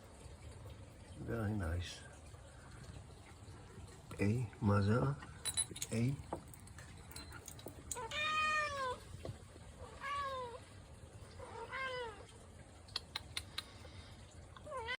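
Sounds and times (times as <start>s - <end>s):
cat meowing: 8.0s - 9.0s, 9.8s - 10.6s, 11.4s - 12.3s.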